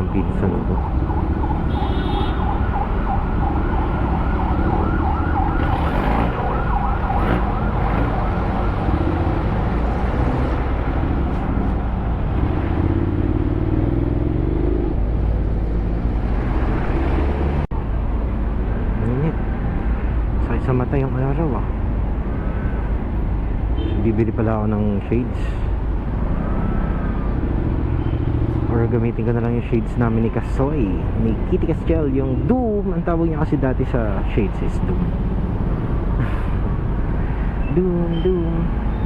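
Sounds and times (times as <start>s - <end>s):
siren yelping: 0.0s - 9.8s
wind: 0.0s - 39.0s
lower wavering siren: 0.6s - 10.1s.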